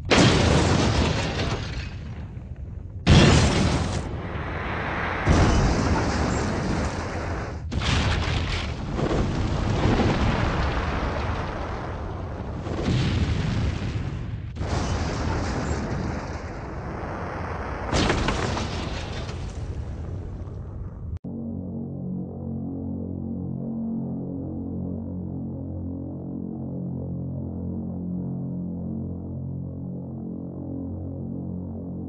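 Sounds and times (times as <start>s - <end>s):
deep rumbling explosions: 0.0s - 21.2s.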